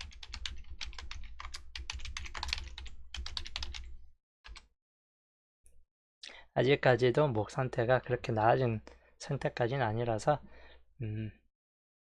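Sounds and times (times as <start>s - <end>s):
keyboard typing: 0.0s - 3.9s, 4.5s - 4.7s.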